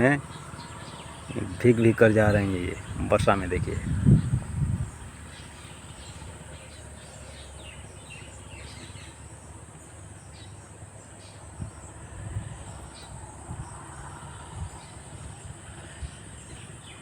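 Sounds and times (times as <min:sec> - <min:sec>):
bird chirps: 0:00.0 - 0:09.4
insect drone: 0:00.0 - 0:17.0.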